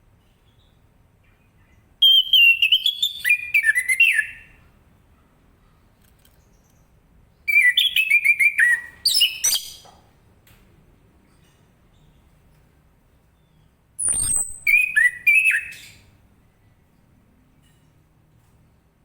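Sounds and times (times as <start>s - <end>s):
sharp click: 14.0s - 14.7s.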